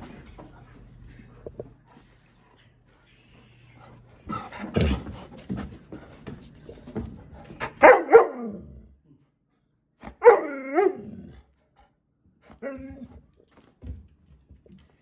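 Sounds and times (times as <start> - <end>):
dog barking: 7.7 - 8.7, 10.0 - 11.2.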